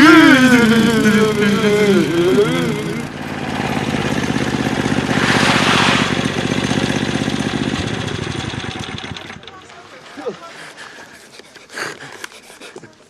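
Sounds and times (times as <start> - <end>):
man's wavering cry: 0.0 - 3.2
minibike engine running: 0.0 - 10.3
brief hiss: 5.1 - 6.5.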